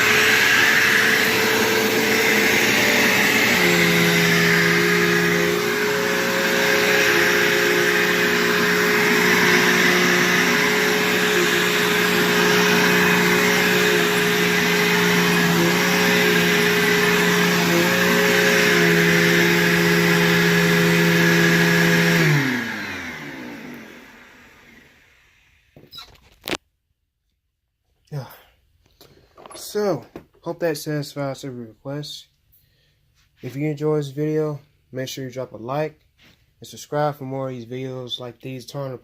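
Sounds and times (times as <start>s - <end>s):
vacuum motor winding down: 0.0s - 25.6s
vacuum cleaner running: 0.0s - 25.7s.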